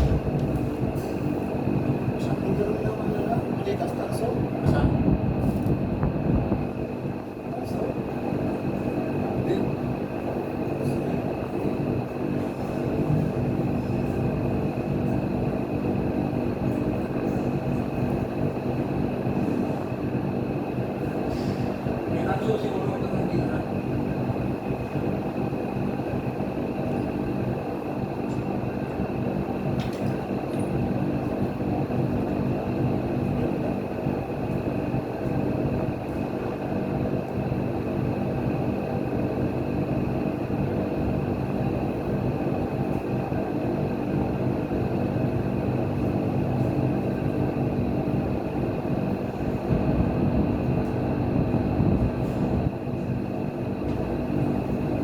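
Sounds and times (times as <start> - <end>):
machine humming: 0.0 - 3.0.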